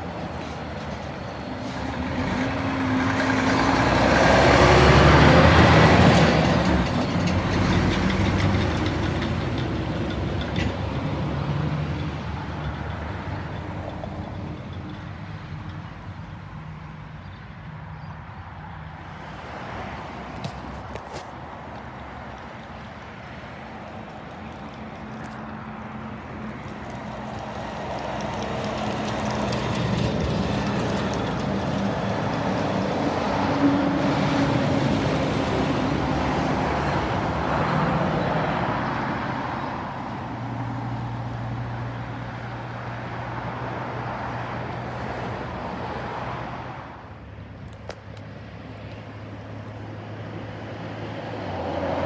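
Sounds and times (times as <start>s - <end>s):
road traffic passing: 0.0s - 52.0s.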